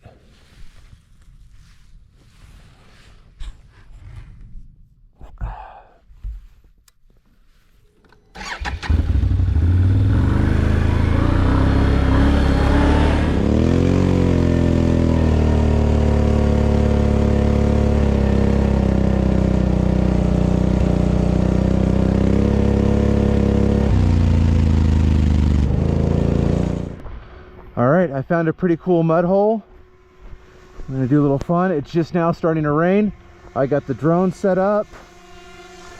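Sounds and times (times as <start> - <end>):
engine cranking and idling: 8.3 - 13.0.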